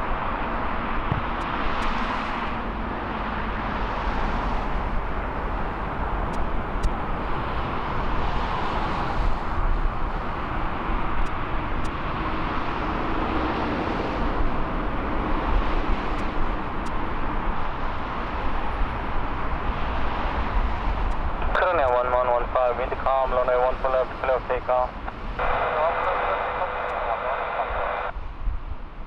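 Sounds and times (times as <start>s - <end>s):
jet engine roar: 0.0s - 28.1s.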